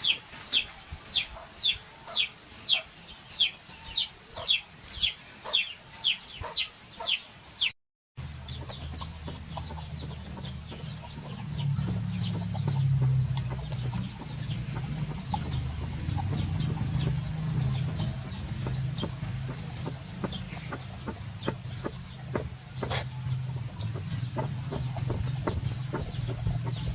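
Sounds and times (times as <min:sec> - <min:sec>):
faint chirps and clicks: 0:08.2 - 0:26.9
steady low hum: 0:08.2 - 0:26.9.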